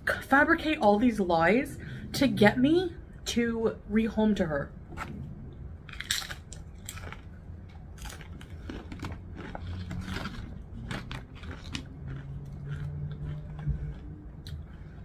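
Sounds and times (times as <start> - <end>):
crunching and chewing chip: 5.9 - 15.0.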